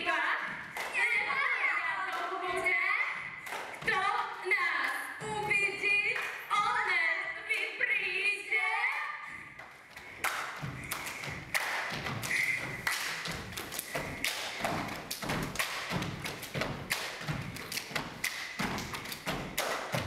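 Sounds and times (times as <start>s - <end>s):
feet thumping on stage floor: 9.6s - 20.0s.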